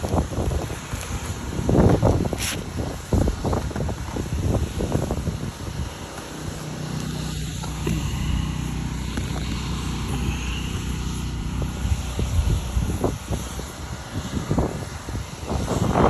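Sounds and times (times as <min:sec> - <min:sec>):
wind buffeting microphone: 0:00.0 - 0:16.0
motor humming: 0:05.9 - 0:13.7.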